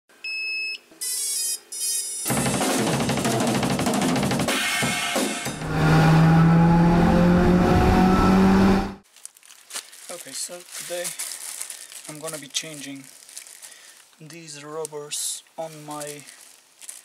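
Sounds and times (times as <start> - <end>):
drum kit with cymbals: 2.3 - 5.6.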